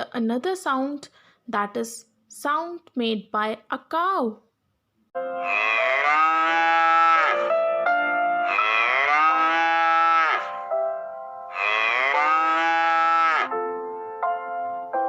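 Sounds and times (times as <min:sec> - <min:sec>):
keyboard-like music notes: 0:05.2 - 0:15.0
cow mooing: 0:05.4 - 0:07.6, 0:08.4 - 0:10.6, 0:11.5 - 0:13.6.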